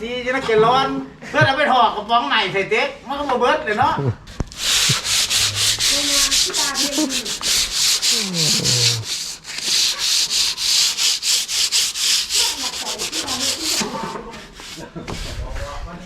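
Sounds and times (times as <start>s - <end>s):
hand sanding wood: 4.4s - 15.8s.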